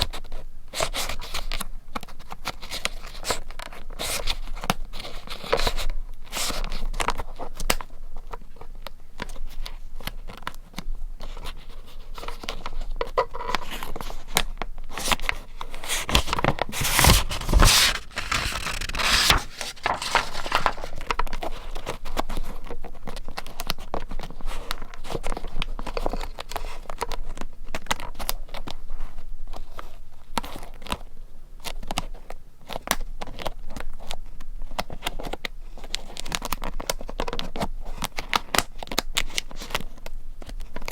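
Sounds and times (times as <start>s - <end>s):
paper rustling and tearing: 14.9s - 22.5s.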